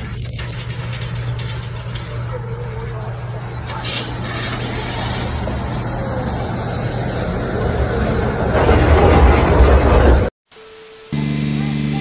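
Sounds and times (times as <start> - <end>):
vehicle engine rumble: 0.0 - 10.3
road noise: 0.0 - 12.0.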